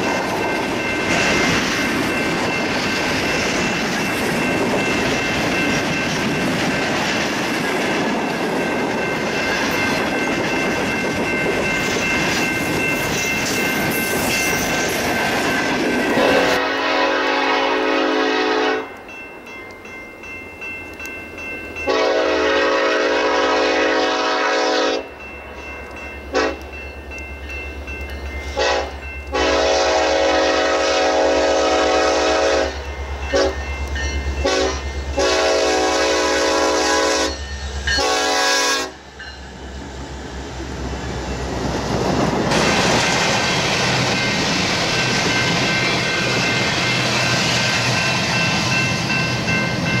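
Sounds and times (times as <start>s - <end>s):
locomotive air horn blasts: 16.2s - 18.9s, 21.9s - 25.1s, 26.3s - 26.6s, 28.6s - 33.6s, 34.4s - 37.4s, 38.0s - 39.0s.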